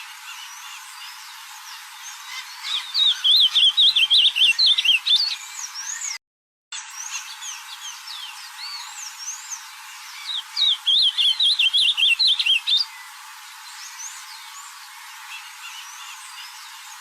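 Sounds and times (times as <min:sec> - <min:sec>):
other birds chirping: 0:00.0 - 0:06.2, 0:06.8 - 0:17.0
bird singing warbling phrase: 0:02.0 - 0:06.2, 0:10.2 - 0:13.1.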